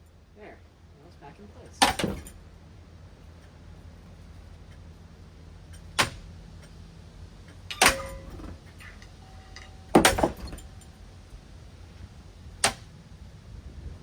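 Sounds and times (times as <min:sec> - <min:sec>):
ceiling fan motor humming: 0:00.0 - 0:14.0
sharp metallic clanks: 0:07.5 - 0:11.0.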